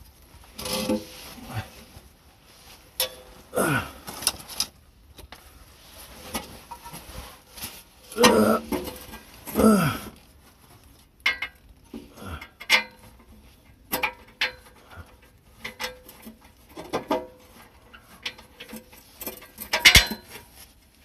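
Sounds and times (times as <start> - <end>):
metal tools clanking on metal: 3.0 - 3.4, 13.9 - 20.5.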